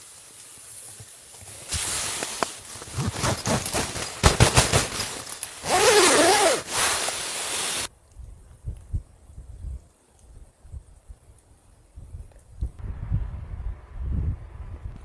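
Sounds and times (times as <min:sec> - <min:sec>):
rustling and scraping: 0:00.9 - 0:07.9
zipper being pulled: 0:01.6 - 0:07.9.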